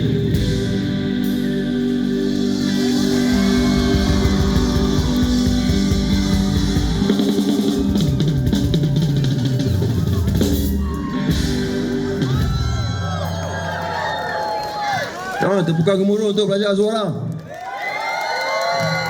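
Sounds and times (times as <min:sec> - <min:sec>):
instrumental rock band playing: 0:00.0 - 0:14.1.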